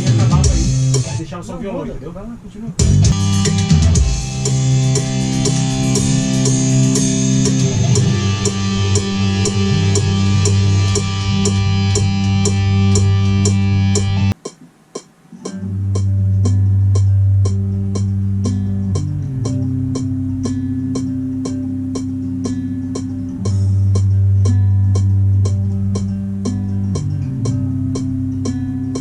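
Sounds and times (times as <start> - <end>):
rock song with guitars and drums: 2.8 - 14.4.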